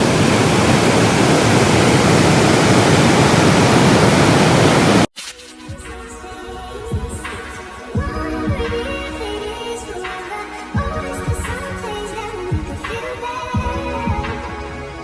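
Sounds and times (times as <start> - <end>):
waterfall rushing: 0.0 - 5.1
background music: 5.2 - 15.0.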